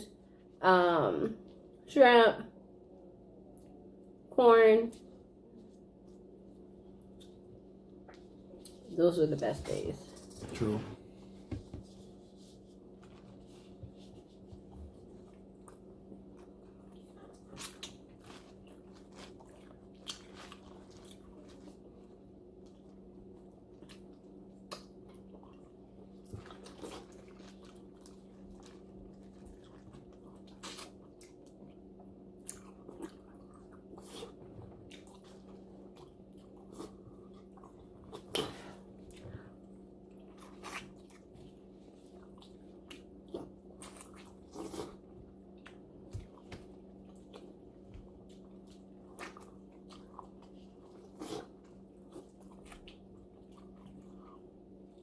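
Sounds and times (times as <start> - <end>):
chewing and biting: 15.2 - 39.2, 40.0 - 55.0.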